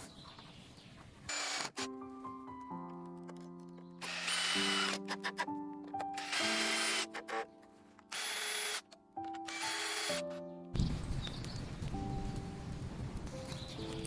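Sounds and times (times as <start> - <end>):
power tool whirring: 1.3 - 1.9, 4.0 - 5.4, 6.1 - 7.4, 8.1 - 8.8, 9.5 - 10.3
soft background music: 1.6 - 14.0.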